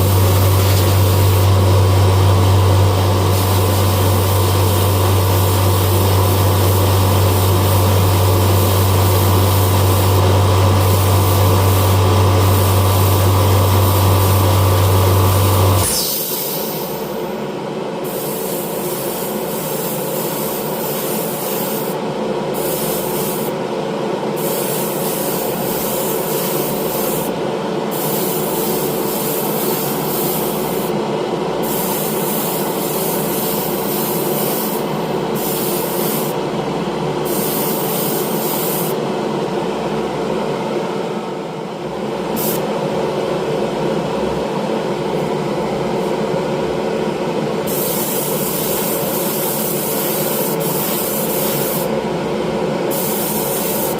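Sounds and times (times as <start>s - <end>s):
paint spray gun hissing: 0.0s - 17.1s, 18.1s - 22.0s, 22.6s - 23.5s, 24.4s - 27.3s, 27.9s - 30.9s, 31.6s - 36.4s, 37.3s - 39.0s, 47.7s - 51.9s, 52.9s - 53.9s
air compressor humming: 0.0s - 39.0s, 47.6s - 52.0s, 52.9s - 53.9s.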